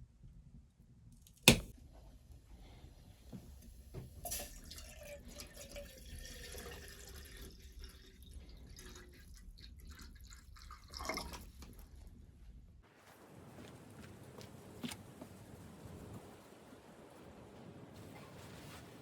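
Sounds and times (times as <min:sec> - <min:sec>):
water dripping and trickling: 0:04.2 - 0:11.8.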